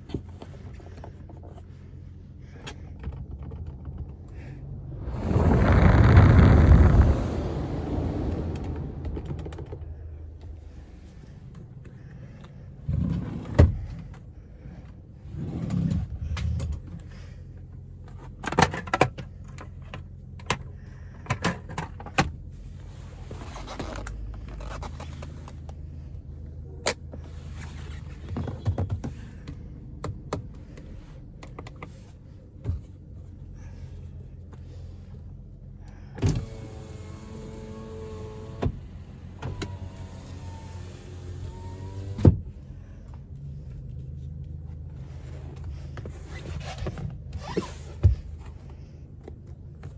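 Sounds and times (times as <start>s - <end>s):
car engine idling: 0.6s - 12.9s
loud thuds: 4.8s - 10.1s.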